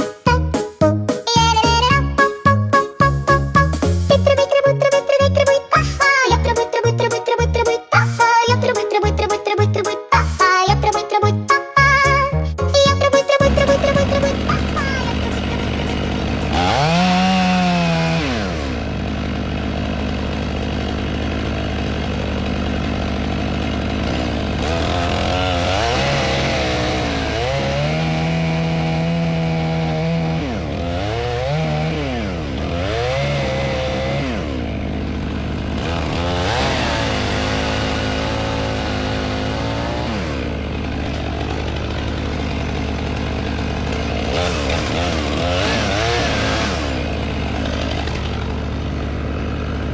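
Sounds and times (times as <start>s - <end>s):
chainsaw cutting wood: 0.0s - 9.9s, 13.2s - 49.9s.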